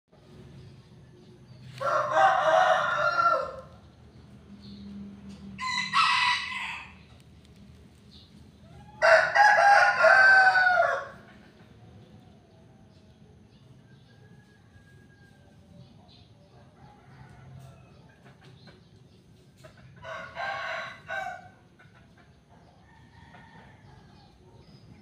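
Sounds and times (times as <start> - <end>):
roosters crowing: 1.7 - 3.9, 4.6 - 7.2, 8.6 - 11.6, 16.7 - 18.2, 19.9 - 21.8, 22.7 - 24.4.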